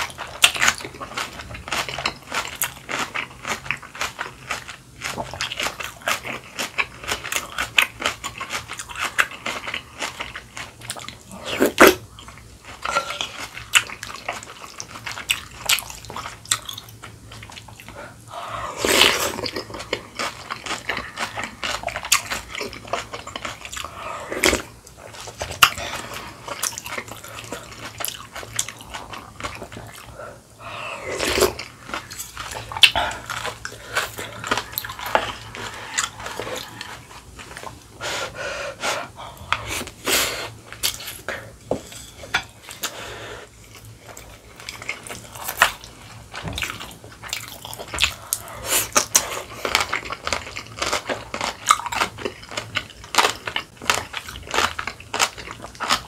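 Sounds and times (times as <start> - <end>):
chewing food with crunches: 0.0 - 38.0, 39.1 - 56.0.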